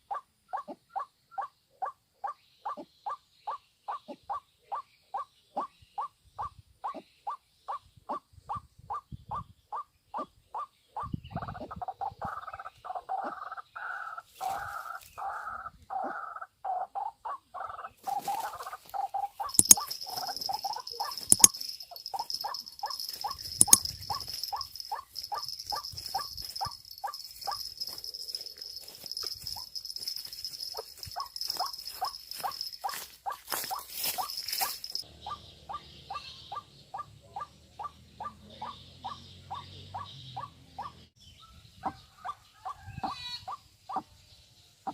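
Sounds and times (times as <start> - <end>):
sharp clicks: 19.5 - 32.8.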